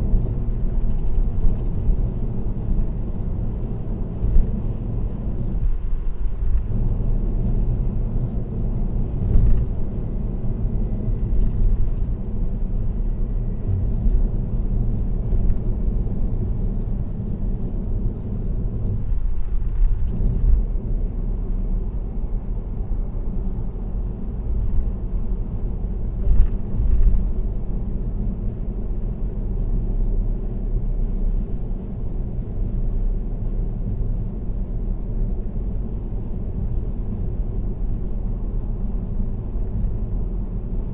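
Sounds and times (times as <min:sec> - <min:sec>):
tyre and road noise: 0:00.0 - 0:40.9.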